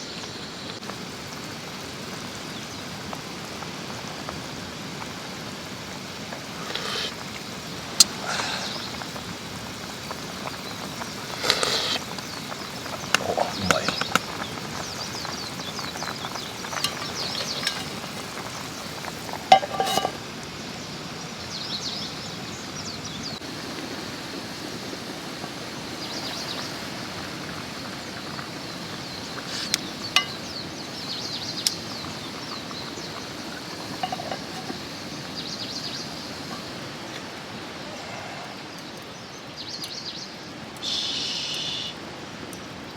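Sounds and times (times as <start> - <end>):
food sizzling in a pan: 0.8 - 20.9, 25.8 - 37.8
metallic clinks of cookware: 16.8 - 18.1, 19.4 - 20.2, 33.9 - 34.8.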